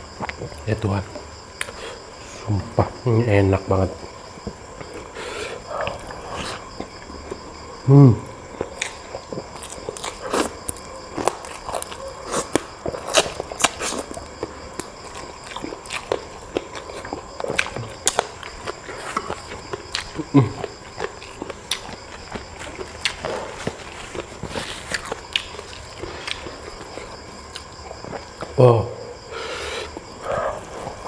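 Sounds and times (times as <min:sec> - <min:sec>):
person chewing: 0:08.5 - 0:28.6.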